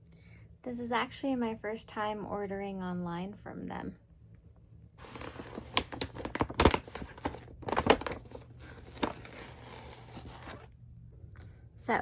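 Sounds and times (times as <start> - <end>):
packaging crinkling and tearing: 5.0 - 10.7.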